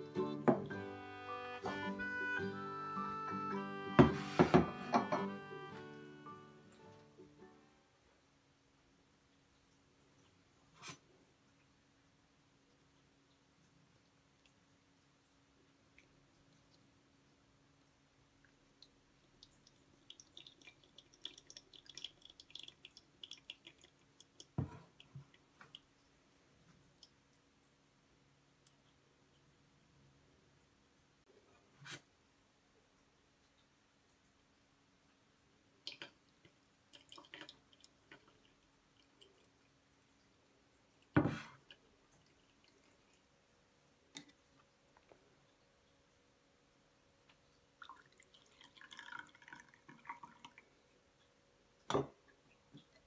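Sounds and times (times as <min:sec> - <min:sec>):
kettle set down thump: 0:04.0 - 0:05.3
coffee dripping: 0:12.6 - 0:27.8, 0:35.8 - 0:45.9, 0:47.2 - 0:53.0.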